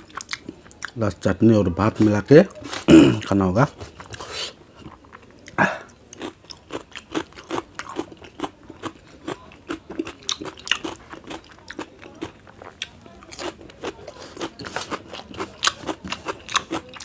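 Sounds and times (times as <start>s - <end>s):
person crunching cucumber: 4.8s - 17.0s.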